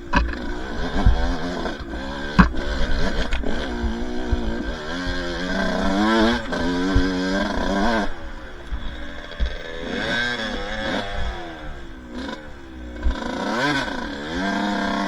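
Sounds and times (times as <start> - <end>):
dirt bike engine revving: 0.0 - 15.0
sharp knocks: 0.1 - 10.0.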